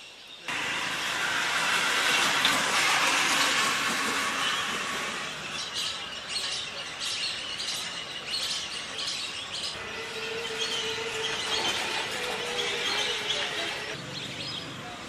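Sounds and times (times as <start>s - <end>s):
outdoor background noise: 0.0s - 15.0s
birds calling: 3.3s - 15.0s.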